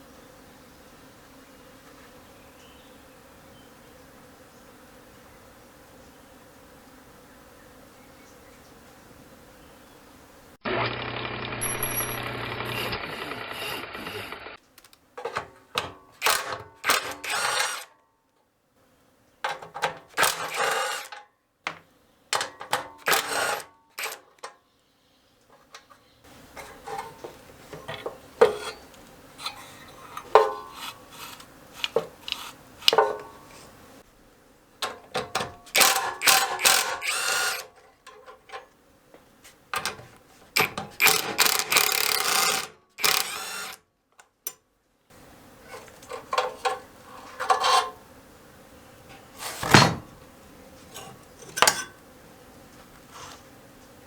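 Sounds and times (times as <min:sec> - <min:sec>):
steady buzz: 0:10.6 - 0:14.6, 0:35.3 - 0:37.7
hand tools on metal engine: 0:15.2 - 0:17.9, 0:19.4 - 0:21.8, 0:22.4 - 0:24.6, 0:25.6 - 0:33.7, 0:34.8 - 0:38.7, 0:39.8 - 0:43.8, 0:45.6 - 0:48.0, 0:50.9 - 0:52.0.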